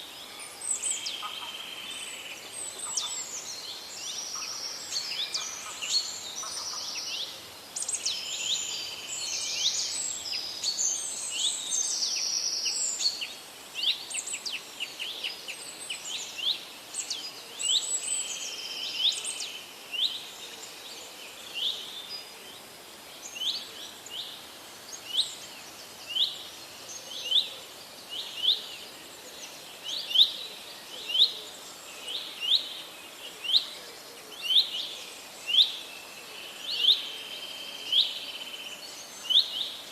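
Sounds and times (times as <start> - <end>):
birds singing: 0.0 - 22.3.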